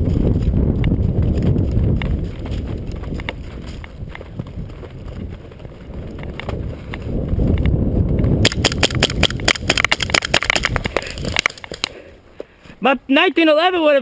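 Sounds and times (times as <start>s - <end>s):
low rumble of movement: 0.0s - 11.9s
airsoft guns firing: 8.4s - 11.6s.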